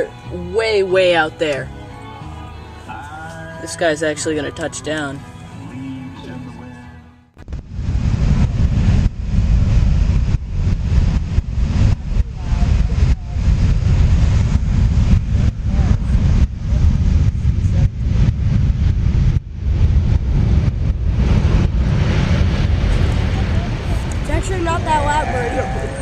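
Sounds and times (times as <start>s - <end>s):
wind buffeting microphone: 7.4s - 26.0s.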